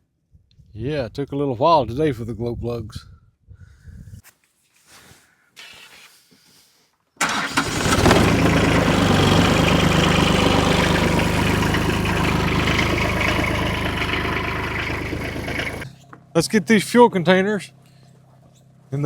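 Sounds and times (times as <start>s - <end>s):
diesel tractor engine idling: 7.2s - 15.9s.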